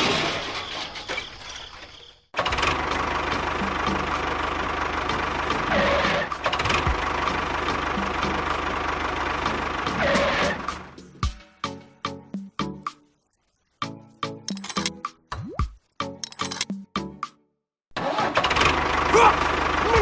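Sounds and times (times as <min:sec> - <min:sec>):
evenly spaced clicks: 0:14.5 - 0:14.9, 0:16.2 - 0:16.7.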